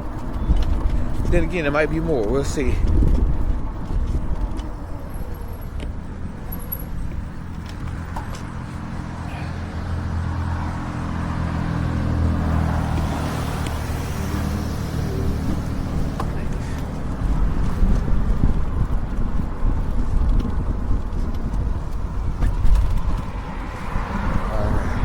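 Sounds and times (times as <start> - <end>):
car passing by: 8.6 - 18.1, 22.4 - 25.0.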